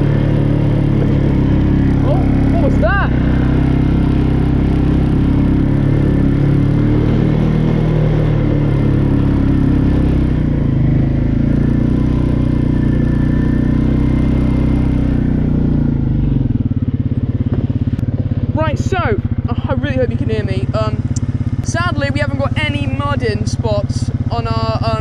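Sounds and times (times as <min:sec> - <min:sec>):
quad bike engine running: 0:00.0 - 0:25.0.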